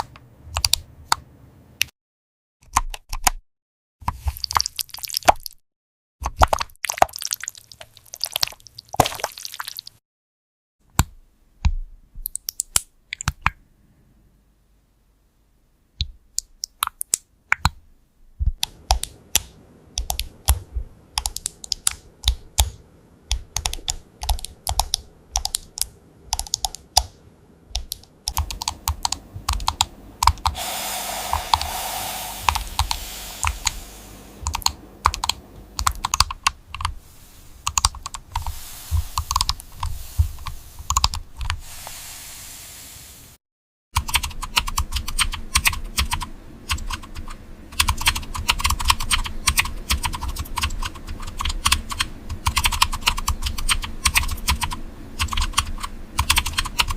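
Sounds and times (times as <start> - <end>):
typing on computer keyboard: 18.6 - 27.1, 27.8 - 30.5, 34.4 - 36.9, 44.0 - 56.9
steady hiss: 28.4 - 36.0, 36.7 - 43.4.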